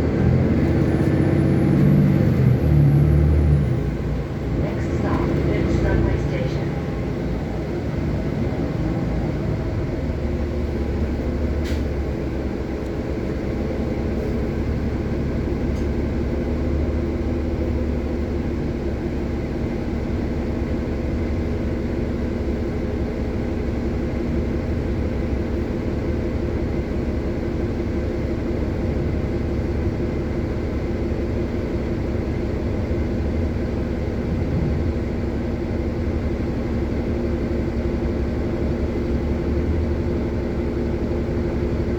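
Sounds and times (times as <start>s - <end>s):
bus engine and road rumble: 0.0s - 41.9s
constant hum: 3.9s - 8.6s.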